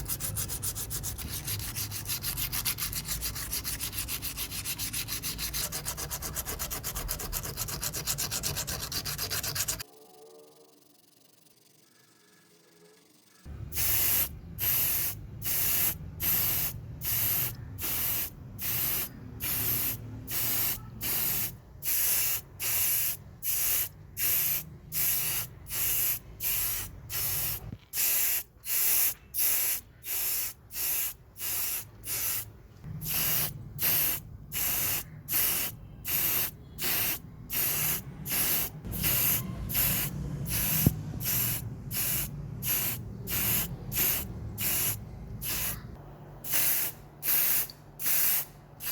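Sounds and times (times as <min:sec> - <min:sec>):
hissing spray bursts: 0:13.7 - 0:48.9.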